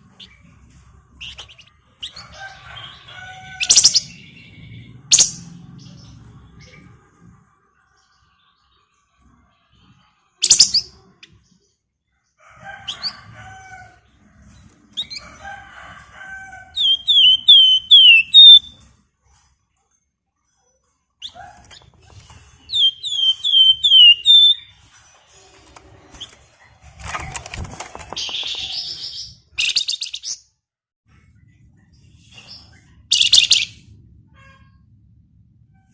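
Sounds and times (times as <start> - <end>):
songbird singing and whistling: 3.6 - 4.5, 5.1 - 5.5, 10.4 - 10.9, 16.8 - 18.8, 22.7 - 24.7, 28.2 - 30.4, 33.1 - 33.8.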